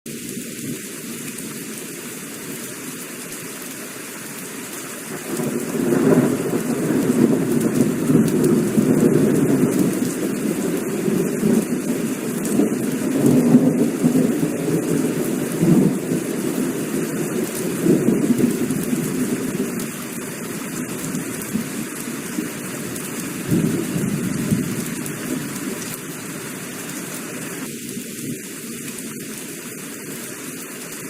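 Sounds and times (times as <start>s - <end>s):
heavy rain: 0.1s - 31.0s
thunder rumbling: 5.1s - 26.0s.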